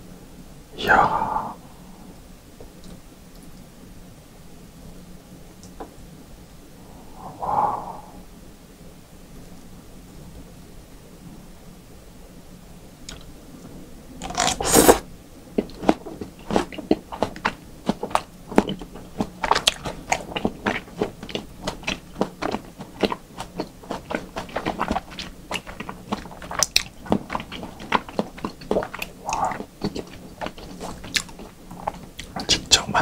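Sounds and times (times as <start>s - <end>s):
wet chewing mouth sounds: 14.2s - 33.0s
wet bite: 15.6s - 32.7s.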